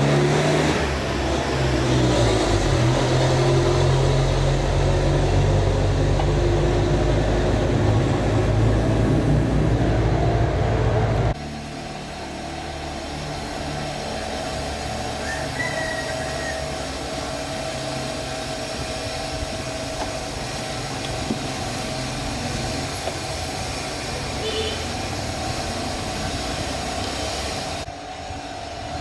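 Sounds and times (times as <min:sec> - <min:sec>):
machine rumbling and whining: 0:00.0 - 0:29.0.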